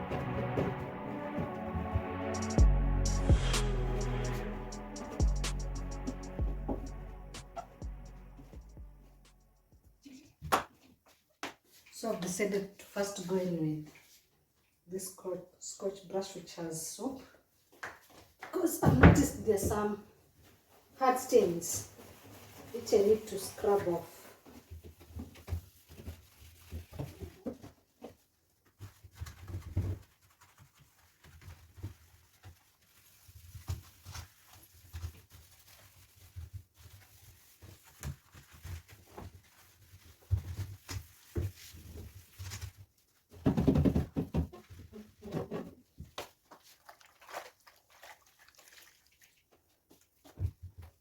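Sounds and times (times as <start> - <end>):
scouring pad scrubbing: 21.0 - 24.2, 46.5 - 50.2.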